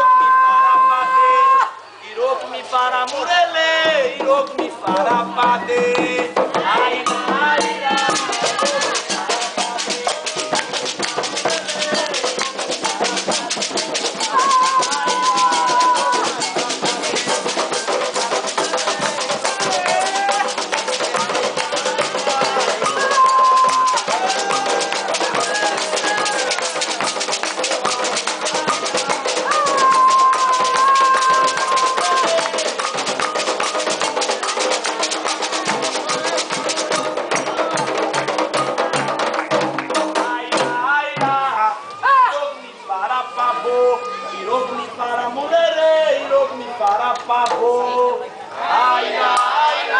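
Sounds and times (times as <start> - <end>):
voices chanting: 0.8 - 49.9
fast hand-drumming: 3.8 - 41.5.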